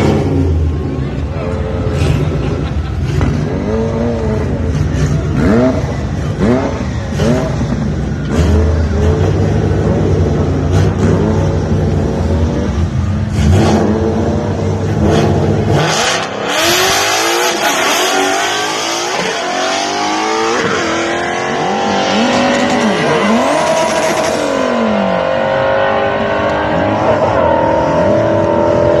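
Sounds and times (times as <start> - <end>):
car engine accelerating hard: 0.0 - 29.0.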